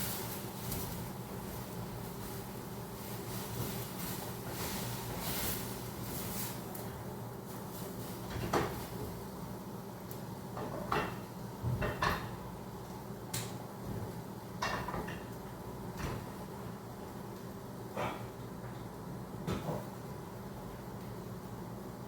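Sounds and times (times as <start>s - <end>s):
cookware and cupboard doors knocking: 10.6s - 12.4s.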